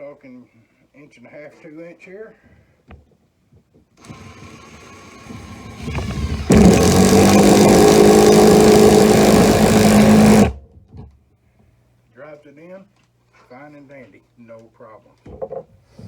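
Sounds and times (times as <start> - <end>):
impact driver driving bolt: 4.0 - 10.6.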